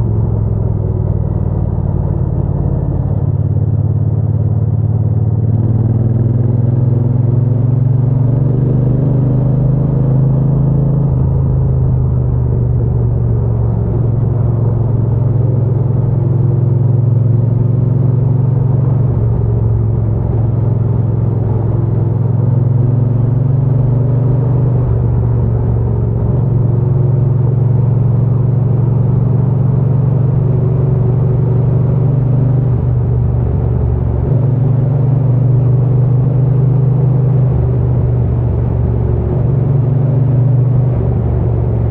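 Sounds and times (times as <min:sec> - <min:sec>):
motorcycle engine rumbling: 0:10.7 - 0:41.9.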